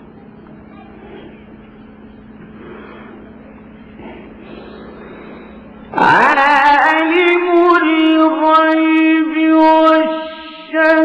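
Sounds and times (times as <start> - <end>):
recording hum and hiss: 0.0 - 11.0.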